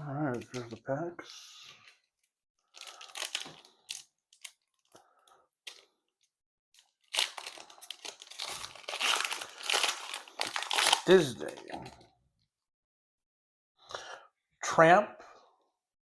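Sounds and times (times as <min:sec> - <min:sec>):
foil wrapper crinkling and tearing: 0:02.7 - 0:04.9, 0:06.8 - 0:11.9
foil wrapper rustling: 0:07.0 - 0:11.8.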